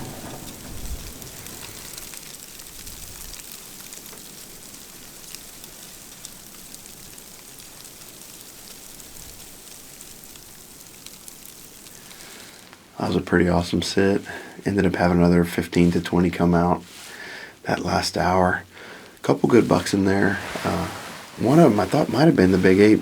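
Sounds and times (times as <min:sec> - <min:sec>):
blizzard wind hissing: 0:00.0 - 0:03.4, 0:18.8 - 0:23.0
snow ticking on blind: 0:00.0 - 0:23.0.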